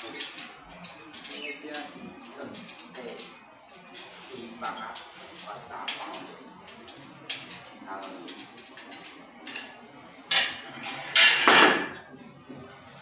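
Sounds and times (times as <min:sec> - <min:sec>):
metal objects clinking and clattering: 0:00.0 - 0:01.9, 0:06.9 - 0:12.1.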